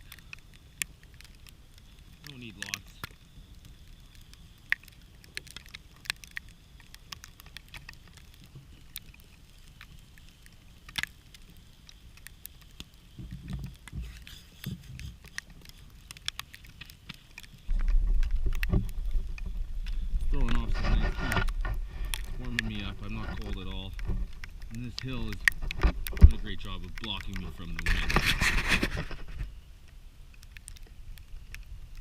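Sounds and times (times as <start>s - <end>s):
campfire crackling and popping: 0.0s - 32.0s
low rumble: 17.7s - 29.4s.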